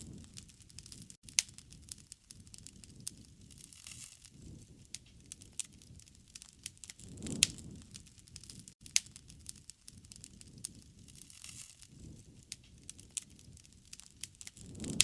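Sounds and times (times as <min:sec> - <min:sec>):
flames rumbling: 0:00.0 - 0:15.0
wood fire crackling: 0:00.0 - 0:15.0.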